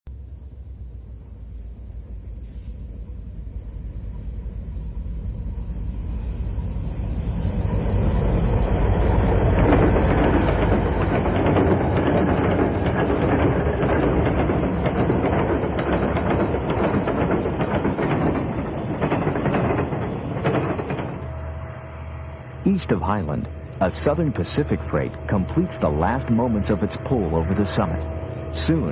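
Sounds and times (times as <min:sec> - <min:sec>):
diesel locomotives rumbling: 0:00.1 - 0:28.9
wheels clattering on rails: 0:09.3 - 0:21.3.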